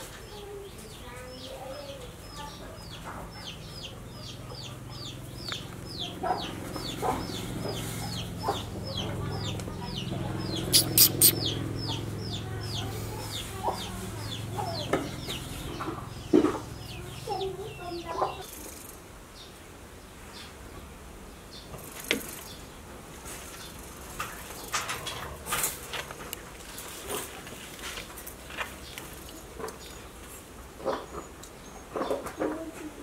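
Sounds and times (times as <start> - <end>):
bird peeping: 0.4 - 18.5
bird clucking: 1.6 - 18.5
sharp clicks: 10.7 - 11.4.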